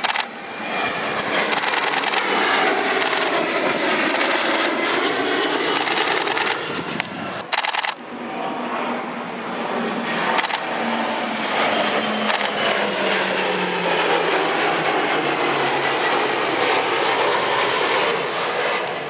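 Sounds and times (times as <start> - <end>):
camera shutter clicks: 0.0 - 0.3, 1.5 - 2.3, 3.0 - 3.3, 4.1 - 4.7, 5.8 - 6.6, 7.5 - 8.0, 10.4 - 10.6, 12.3 - 12.6
jet engines flying past: 0.0 - 19.0.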